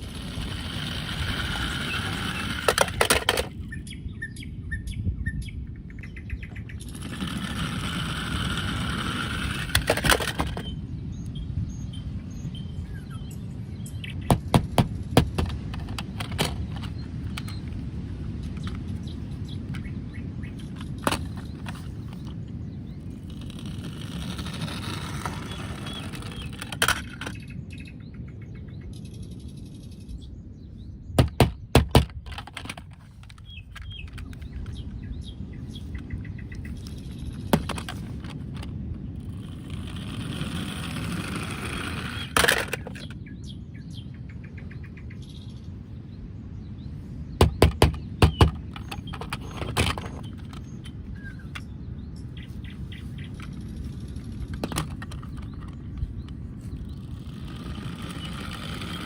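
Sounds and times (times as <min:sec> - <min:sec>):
steady low rumble: 0:00.0 - 0:59.0
sharp knocks and clicks: 0:14.3 - 0:17.6, 0:31.2 - 0:34.6, 0:47.4 - 0:51.7.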